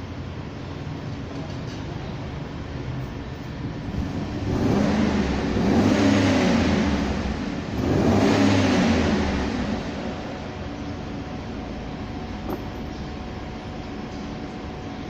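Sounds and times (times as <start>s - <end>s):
vehicle engine revving: 3.7s - 14.8s.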